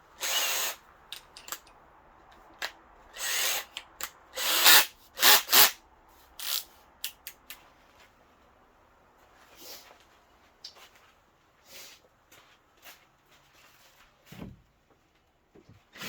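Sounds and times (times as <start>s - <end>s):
power drill bursts: 0.2s - 0.8s, 3.1s - 5.8s, 6.4s - 6.7s.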